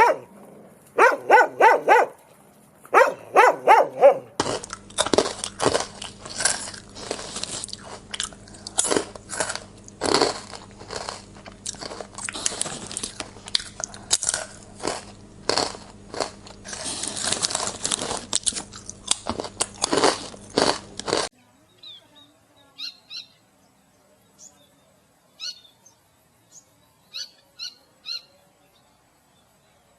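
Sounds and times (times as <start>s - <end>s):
crunchy chewing: 0.0s - 21.3s
faint low hum: 0.0s - 29.9s.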